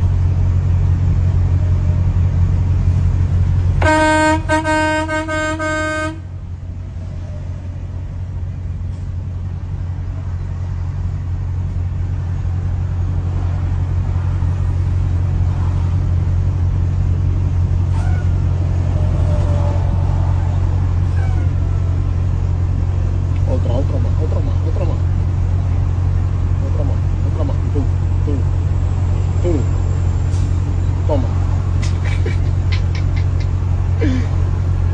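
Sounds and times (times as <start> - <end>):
vehicle driving rumble: 0.0 - 34.9
car horn: 3.8 - 6.4, 17.9 - 18.4.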